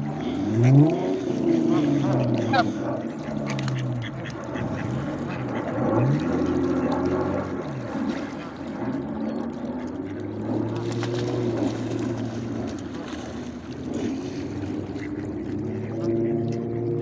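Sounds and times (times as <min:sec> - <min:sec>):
voices: 0:00.0 - 0:07.7, 0:13.9 - 0:17.0
low motor hum: 0:00.0 - 0:17.0.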